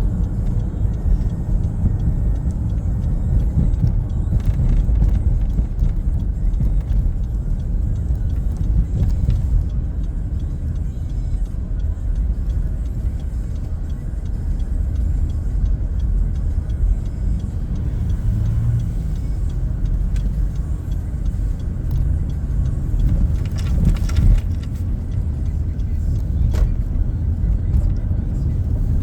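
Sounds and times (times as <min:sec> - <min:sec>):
car road and engine rumble: 0:00.0 - 0:29.0
faint regular ticking: 0:00.0 - 0:29.0
cluster of clicks: 0:19.8 - 0:28.8.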